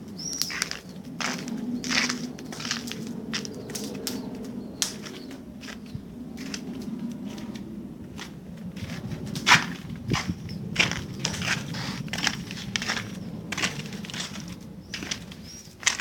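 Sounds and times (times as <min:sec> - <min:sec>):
campfire crackling: 0:00.0 - 0:16.0
fire pops and snaps: 0:00.4 - 0:05.2.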